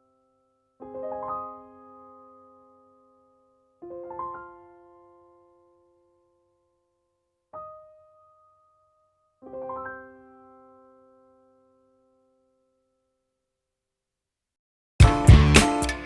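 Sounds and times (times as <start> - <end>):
slow piano chords: 9.4 - 11.9.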